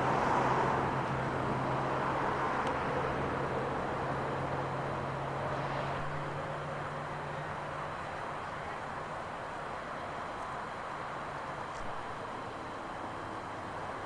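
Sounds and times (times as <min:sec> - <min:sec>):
vehicle passing by: 0:00.0 - 0:06.3.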